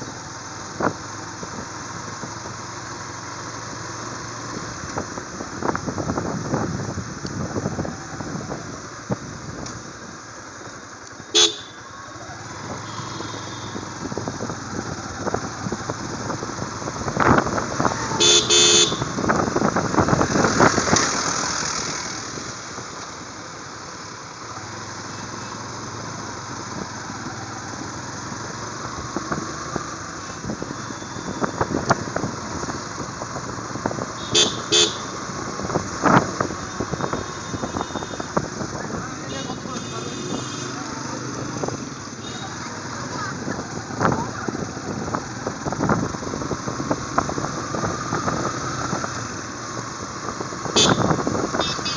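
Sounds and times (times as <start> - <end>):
motorcycle engine: 0.0 - 51.9
vehicle horn toots: 11.3 - 11.8, 12.8 - 14.0, 18.2 - 19.2, 34.2 - 35.2, 36.7 - 38.3, 39.3 - 40.8, 50.8 - 51.9.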